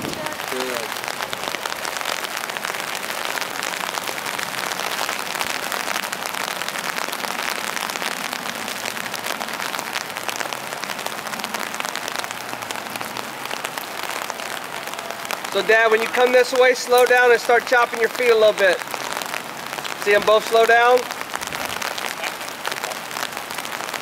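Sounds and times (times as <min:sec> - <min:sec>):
rain on wet pavement: 0:00.0 - 0:24.0.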